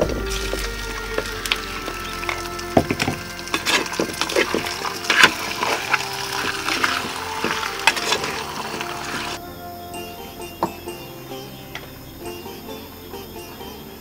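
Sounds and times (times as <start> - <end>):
chicken sizzling in a pot: 1.2 - 9.4.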